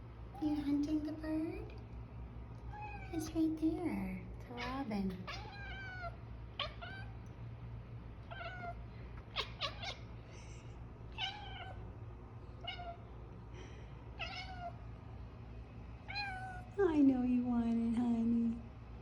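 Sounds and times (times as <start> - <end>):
cat meowing: 5.3 - 7.2, 8.3 - 10.0, 11.2 - 11.8, 12.6 - 13.0, 14.2 - 14.8, 16.1 - 16.7.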